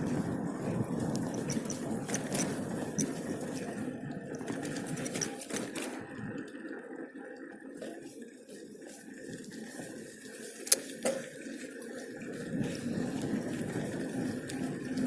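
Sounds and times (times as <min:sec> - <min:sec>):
wind over microphone: 0:00.0 - 0:06.5, 0:12.1 - 0:15.0
bicycle tyres on road: 0:00.0 - 0:15.0.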